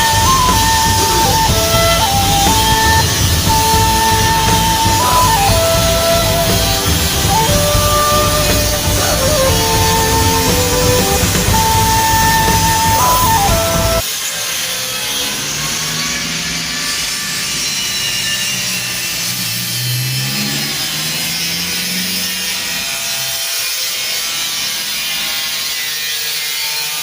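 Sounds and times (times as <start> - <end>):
guitar music: 0.0 - 14.0
mechanical rushing noise: 0.0 - 23.4.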